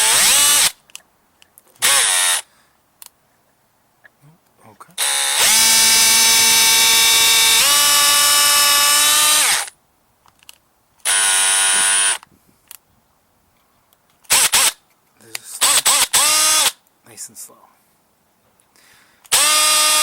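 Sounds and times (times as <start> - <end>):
power drill whining: 0.0 - 0.8, 1.8 - 2.5, 5.0 - 9.7, 11.0 - 12.2, 15.6 - 16.8, 19.3 - 20.0.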